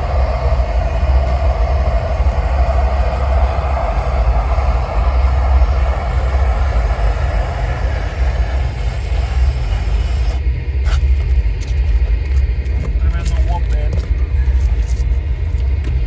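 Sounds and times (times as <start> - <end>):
propane torch burning: 0.0 - 16.0.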